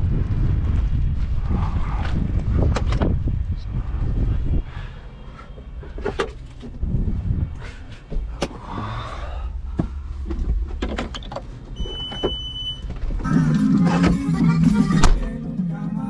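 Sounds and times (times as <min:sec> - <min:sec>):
low rumble: 0:00.0 - 0:11.2
latin music on radio: 0:13.2 - 0:16.0.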